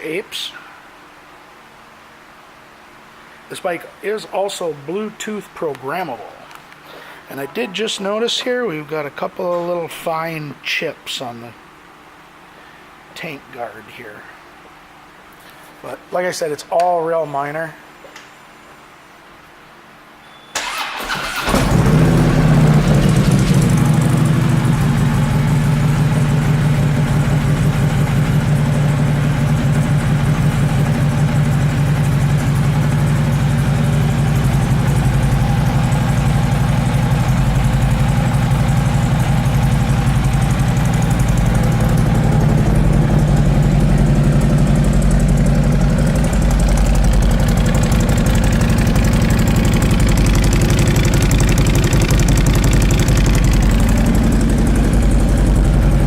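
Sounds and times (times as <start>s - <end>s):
motorcycle engine idling: 20.6s - 56.0s.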